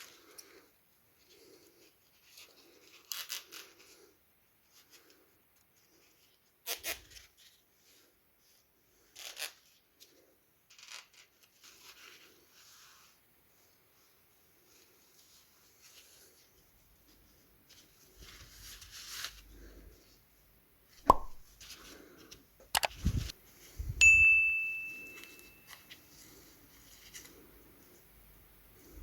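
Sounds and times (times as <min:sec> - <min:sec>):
soft rubbing: 0:25.0 - 0:28.2.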